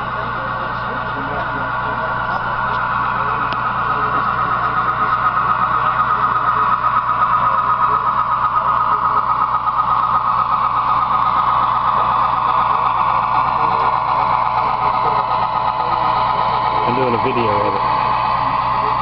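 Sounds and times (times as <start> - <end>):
model train motor whirring: 0.0 - 19.0.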